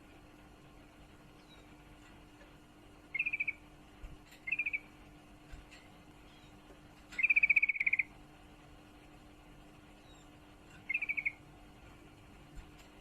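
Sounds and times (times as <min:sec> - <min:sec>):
bird chattering trills: 0:03.1 - 0:03.7, 0:04.4 - 0:05.0, 0:06.2 - 0:08.2, 0:10.0 - 0:11.5.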